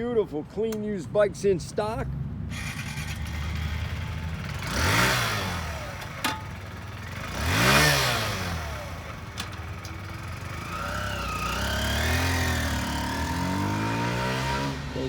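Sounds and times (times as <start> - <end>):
motorcycle engine revving: 2.5 - 15.0.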